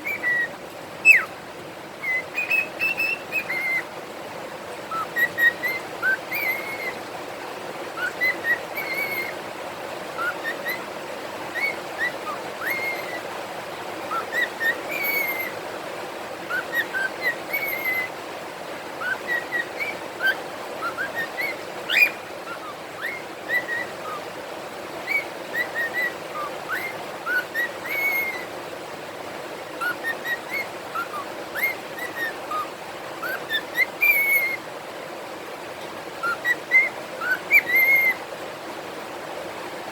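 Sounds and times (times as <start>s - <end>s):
cockatiels whistling: 0.0s - 1.3s, 2.0s - 3.9s, 4.9s - 7.0s, 8.0s - 9.4s, 10.2s - 10.8s, 11.5s - 13.3s, 14.1s - 15.6s, 16.5s - 18.1s, 19.0s - 24.3s, 25.0s - 28.5s, 29.8s - 34.6s, 36.2s - 38.2s
background hiss: 0.0s - 39.9s.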